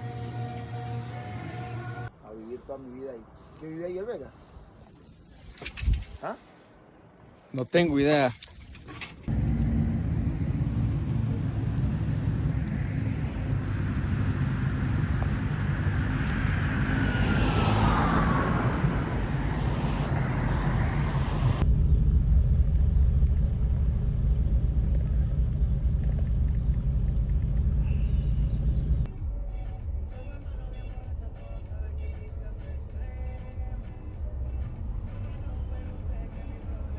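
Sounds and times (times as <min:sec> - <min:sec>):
engine deep rumble: 0:09.1 - 0:36.9.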